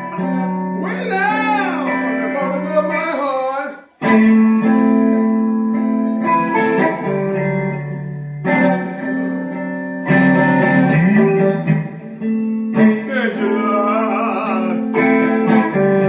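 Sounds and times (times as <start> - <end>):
guitar playing sustained chords: 0.0 - 3.1, 4.0 - 16.0
person singing gospel: 0.8 - 3.9, 13.0 - 15.1.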